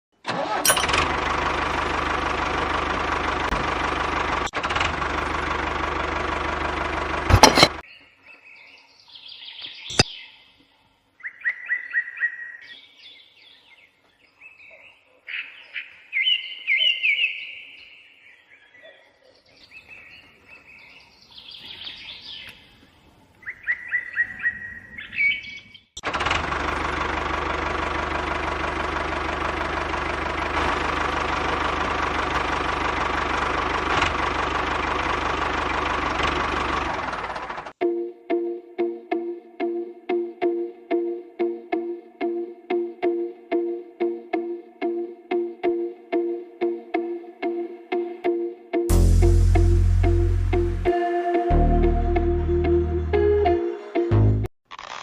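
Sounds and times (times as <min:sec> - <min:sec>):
small pump engine running: 0:00.3 - 0:07.8, 0:26.0 - 0:37.8
birds chirping: 0:07.5 - 0:26.0.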